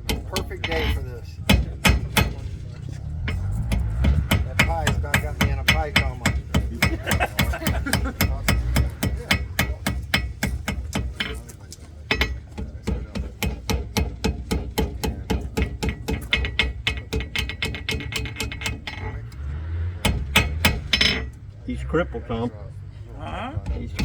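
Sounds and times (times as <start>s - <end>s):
hammer striking metal on anvil: 0.0s - 2.5s, 3.2s - 11.5s, 12.1s - 19.3s, 20.0s - 21.4s.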